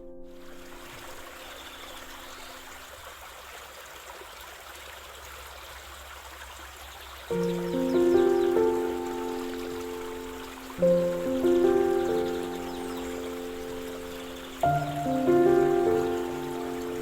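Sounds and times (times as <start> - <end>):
soft music: 0.0 - 2.7, 7.3 - 17.0
stream trickling and gurgling: 0.0 - 17.0.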